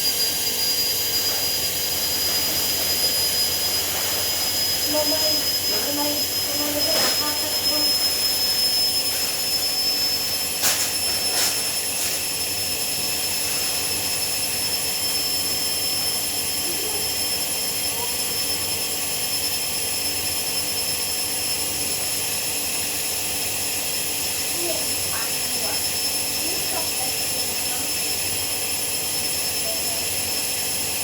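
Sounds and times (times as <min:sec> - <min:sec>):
washing machine spinning: 0:00.0 - 0:31.0.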